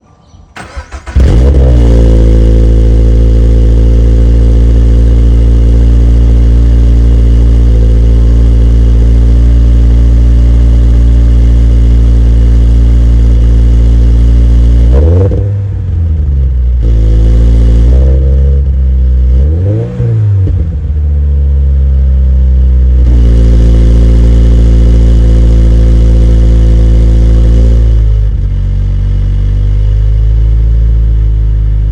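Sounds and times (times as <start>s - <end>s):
engine cranking: 0.6s - 1.6s
engine revving: 0.6s - 21.0s, 21.6s - 28.4s
car engine idling: 0.6s - 31.9s.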